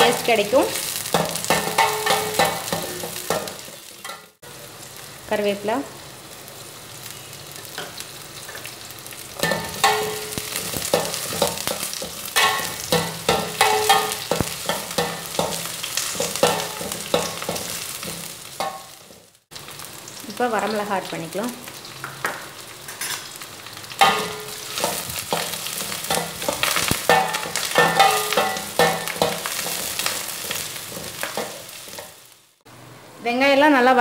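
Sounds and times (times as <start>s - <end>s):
onions sizzling in hot oil: 0.0s - 32.7s
metal spatula scraping pan: 9.4s - 19.2s, 22.9s - 23.4s, 24.0s - 32.2s.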